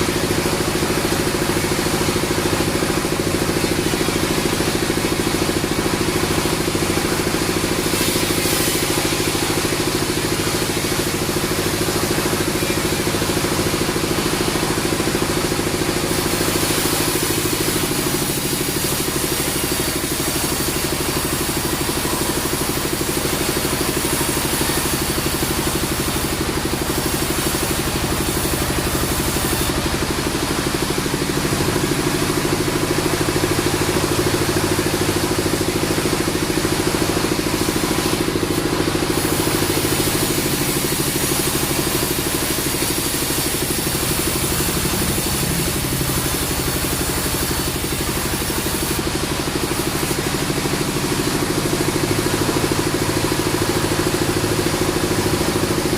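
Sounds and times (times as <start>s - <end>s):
band sawmill machinery running: 0.0s - 55.9s.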